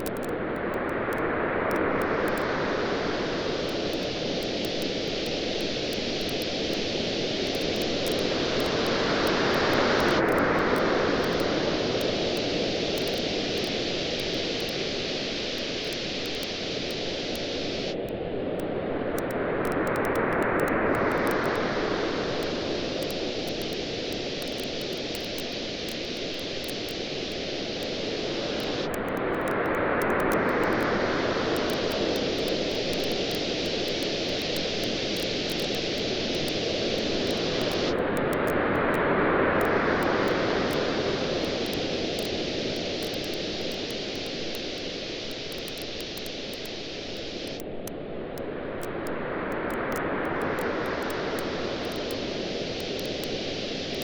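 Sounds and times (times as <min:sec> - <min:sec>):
ocean waves washing in: 0:01.0 - 0:19.0, 0:20.7 - 0:54.0
campfire crackling: 0:31.6 - 0:38.0, 0:40.0 - 0:47.8.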